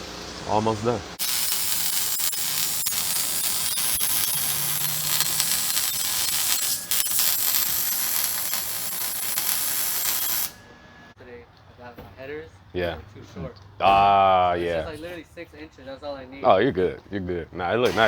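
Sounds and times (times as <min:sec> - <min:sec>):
loud steady hiss: 0:00.0 - 0:10.6.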